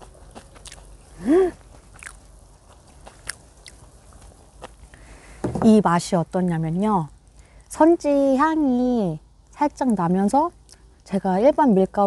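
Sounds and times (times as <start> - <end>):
wet chewing: 0.0 - 5.0
person humming: 1.2 - 1.6.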